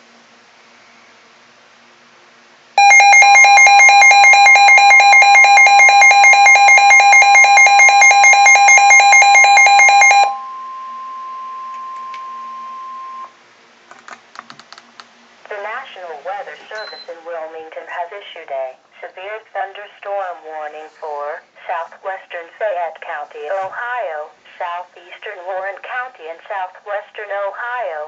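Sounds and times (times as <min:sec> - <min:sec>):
pulsing electronic alarm beeps: 0:02.8 - 0:13.3
steady warning tone: 0:02.8 - 0:13.4.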